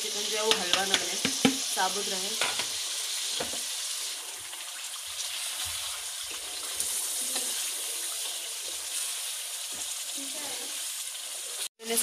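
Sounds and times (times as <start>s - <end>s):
chicken sizzling in a pan: 0.0s - 12.0s
spatula knocking and scraping: 0.5s - 1.7s, 2.4s - 2.8s.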